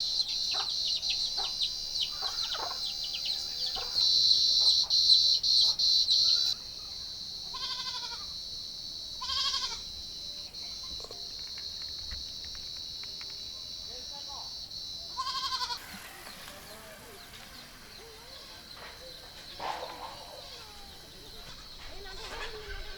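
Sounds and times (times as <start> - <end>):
bird chirps: 0.0 - 7.0, 9.4 - 22.9
insect chirring: 0.0 - 22.9
goat bleating: 7.5 - 8.3, 9.2 - 9.8, 15.1 - 22.9.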